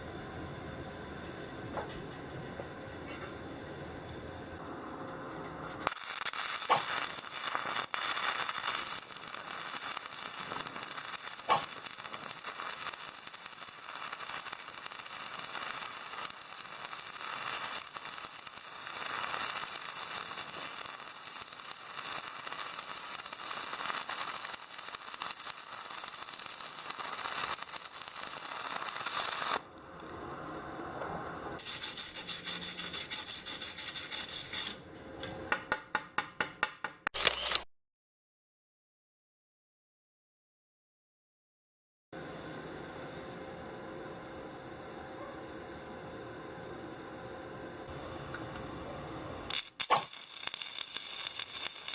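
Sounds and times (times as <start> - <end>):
rough scraping and crackling: 5.3 - 30.2.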